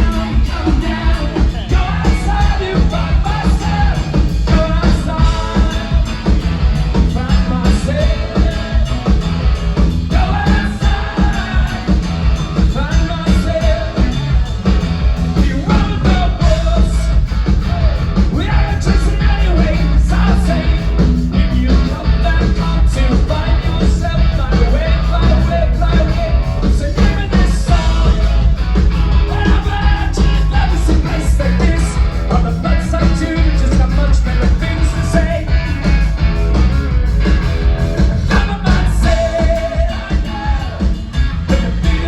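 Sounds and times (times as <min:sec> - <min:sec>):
rock band playing live: 0:00.0 - 0:42.0
person singing: 0:38.2 - 0:42.0.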